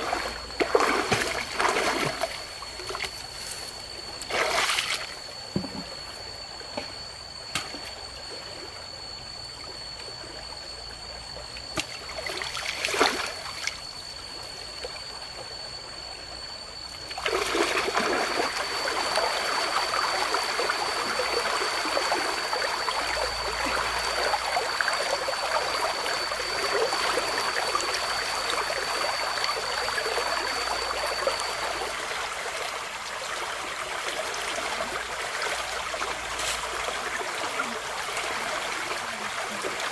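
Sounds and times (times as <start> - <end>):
water splash: 0.0 - 3.1, 4.2 - 5.2
river water trickling: 0.0 - 39.9
thin high tone: 0.0 - 39.9.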